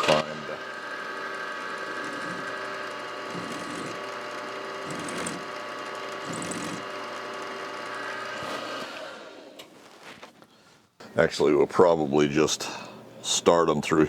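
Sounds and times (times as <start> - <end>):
milling machine running: 0.6 - 9.2.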